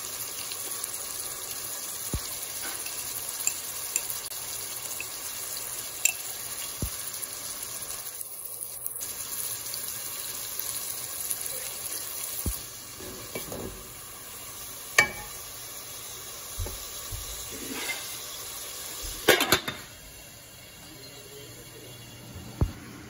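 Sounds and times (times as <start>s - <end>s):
vegetables sizzling in oil: 0.0s - 23.0s
metal lid clanking onto pot: 13.0s - 13.9s, 15.0s - 15.4s, 19.2s - 19.9s.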